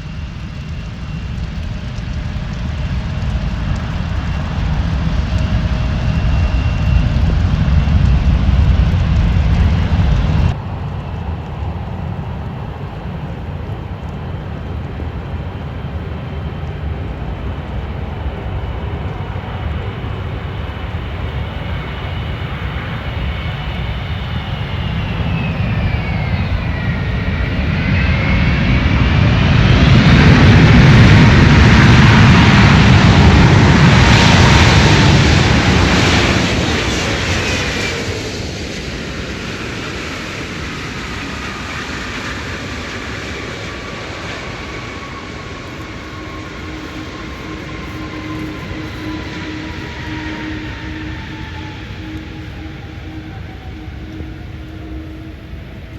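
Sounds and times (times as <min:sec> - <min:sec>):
loud low rumble: 0:00.0 - 0:12.5, 0:42.4 - 0:55.7
jet engine whine: 0:00.0 - 0:55.9
loud jet engine noise: 0:00.0 - 0:55.9.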